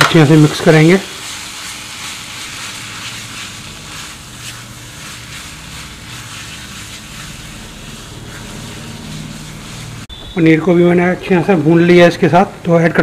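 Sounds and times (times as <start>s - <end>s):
food sizzling in a pan: 0.0s - 10.2s
spatula scraping a pan: 0.4s - 10.1s.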